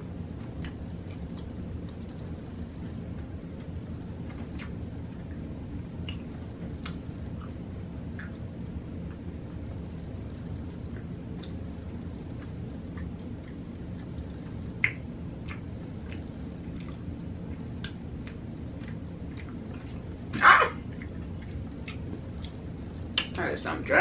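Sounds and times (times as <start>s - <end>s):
steady low hum: 0.0s - 24.0s
close chewing: 12.3s - 20.2s, 20.8s - 23.4s
mouth clicks: 14.8s - 17.0s, 23.2s - 23.4s.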